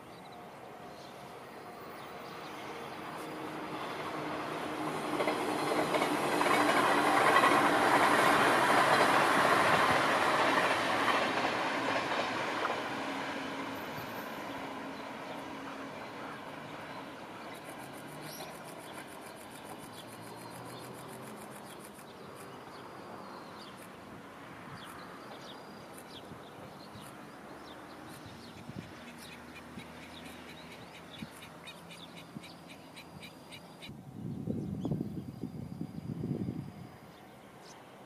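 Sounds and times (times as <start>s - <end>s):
distant electric train rumbling: 0.0s - 38.0s.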